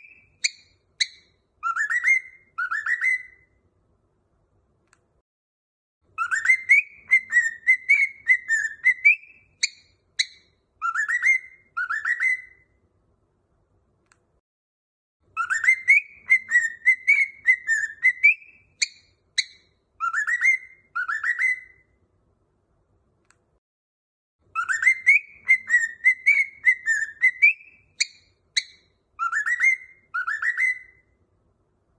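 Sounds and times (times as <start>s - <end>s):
bird whistle song: 0.0s - 3.6s, 6.1s - 12.8s, 15.3s - 22.0s, 24.4s - 31.2s.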